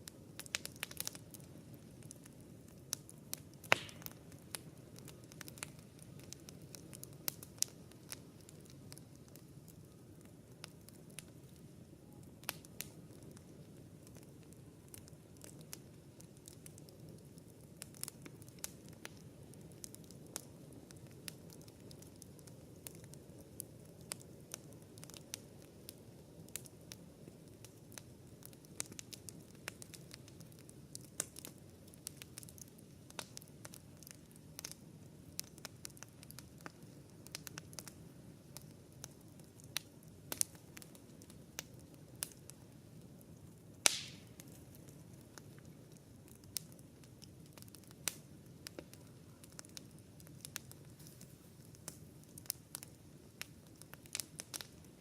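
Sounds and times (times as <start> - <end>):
campfire crackling: 0.0 - 55.0
loud fire pop: 3.8 - 4.1, 43.8 - 44.4.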